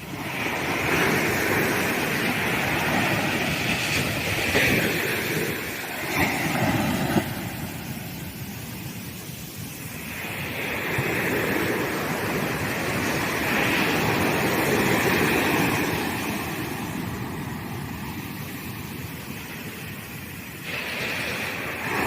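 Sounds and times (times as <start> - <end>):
waves breaking on sandy beach: 0.0 - 22.0.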